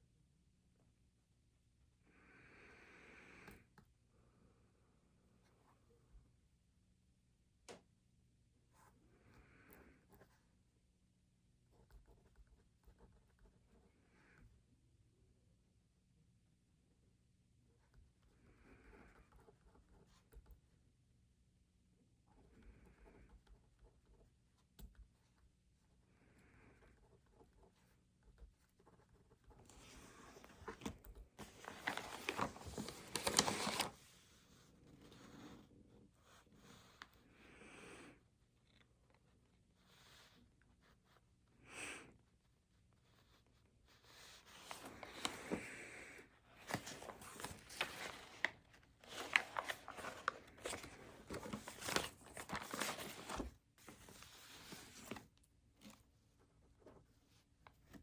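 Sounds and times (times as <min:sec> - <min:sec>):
rustling and crinkling: 0:28.4 - 0:35.8, 0:43.4 - 0:45.8, 0:46.4 - 0:58.0
rustling and scraping: 0:46.5 - 0:56.0.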